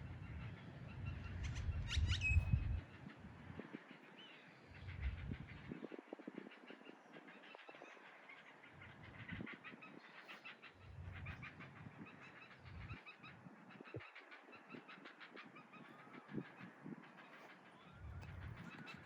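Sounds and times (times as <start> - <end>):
birds chattering: 6.6 - 19.0.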